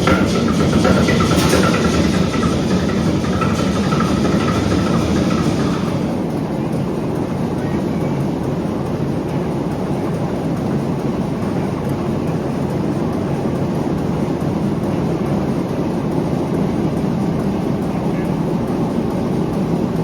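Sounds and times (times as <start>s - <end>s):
diesel engine deep rumble: 0.0s - 9.5s.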